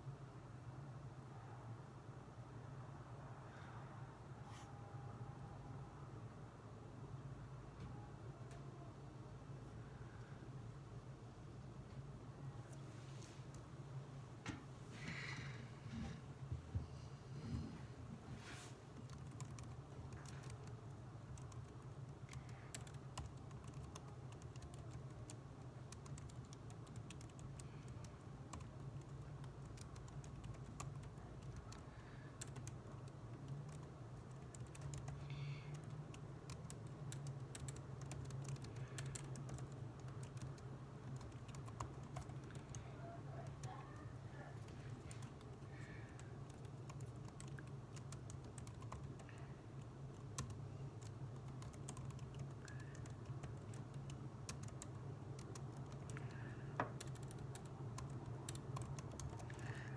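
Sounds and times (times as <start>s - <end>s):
constant low hum: 0.0s - 59.9s
keyboard keystroke clicks: 56.9s - 59.4s.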